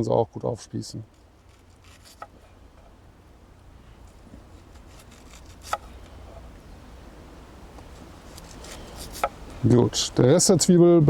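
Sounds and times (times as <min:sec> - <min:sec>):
knife cutting onion: 0:04.1 - 0:06.0, 0:08.3 - 0:09.4.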